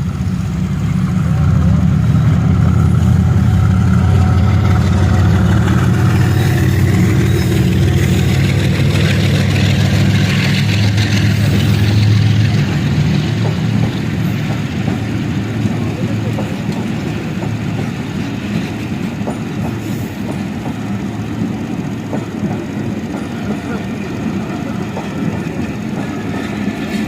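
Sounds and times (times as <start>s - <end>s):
diesel locomotive engine rumbling: 0.0s - 27.0s.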